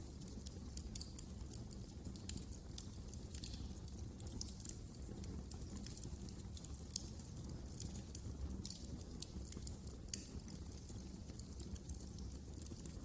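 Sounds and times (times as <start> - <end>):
low rumble of flames: 0.0 - 13.0
wood fire crackling and popping: 0.0 - 13.0.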